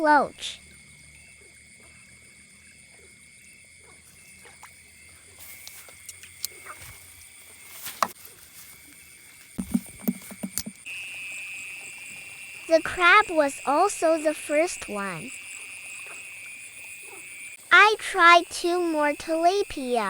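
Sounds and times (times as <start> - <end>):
high-pitched insect drone: 8.6 - 20.0
scattered clicks and knocks: 9.6 - 10.9.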